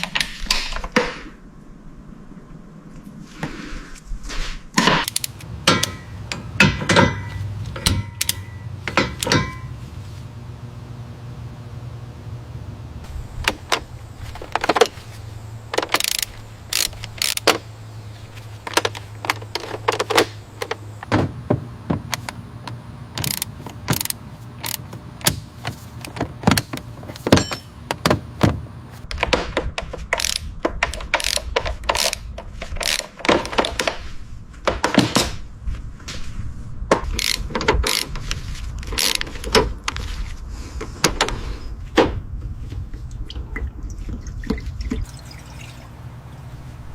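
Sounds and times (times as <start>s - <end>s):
steady low hum: 0.0s - 46.9s
tools clicking and knocking on car parts: 4.8s - 9.8s, 15.7s - 17.8s, 18.4s - 34.0s, 36.9s - 40.0s.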